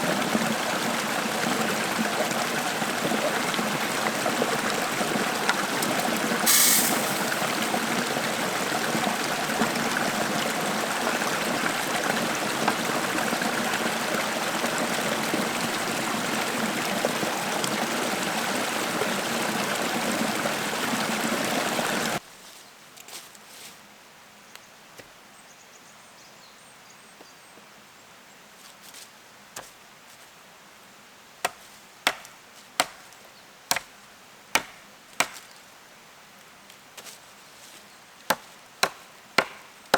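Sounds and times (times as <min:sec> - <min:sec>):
rushing mountain stream: 0:00.0 - 0:22.2
sharp knocks: 0:38.3 - 0:39.7.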